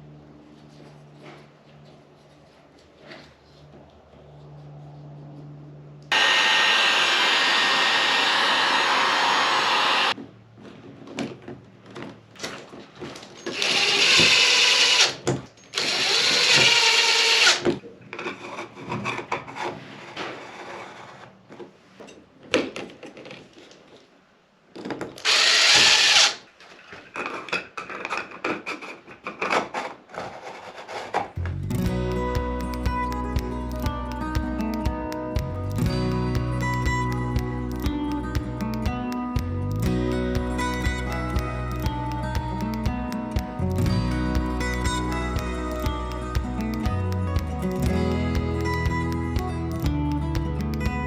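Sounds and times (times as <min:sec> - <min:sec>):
power drill running: 0:06.1 - 0:10.2, 0:13.5 - 0:17.6, 0:25.2 - 0:26.4.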